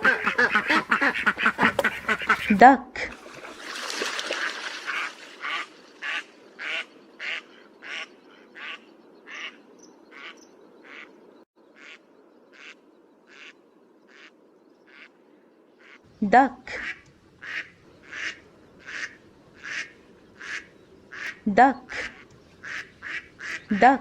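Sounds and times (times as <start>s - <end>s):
duck quacking: 0.0s - 3.1s, 4.9s - 11.1s, 11.8s - 12.0s, 12.6s - 13.5s, 16.7s - 24.0s.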